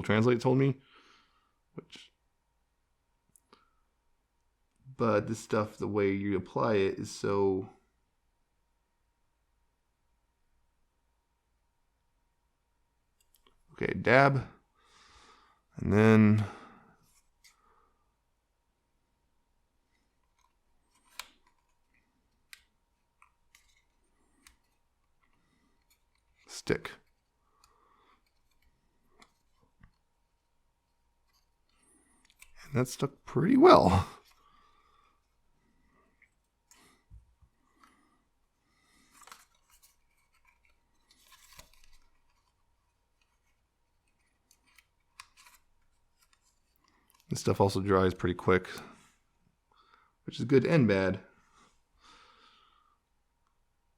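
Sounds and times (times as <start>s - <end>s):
paper parts clicking and tapping: 20.2s - 30.4s, 39.0s - 47.3s
paper rustling: 38.9s - 47.4s.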